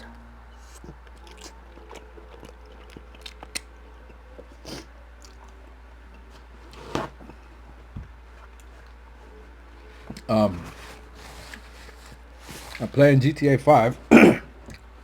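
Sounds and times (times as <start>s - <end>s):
person chewing food: 0.6s - 7.4s.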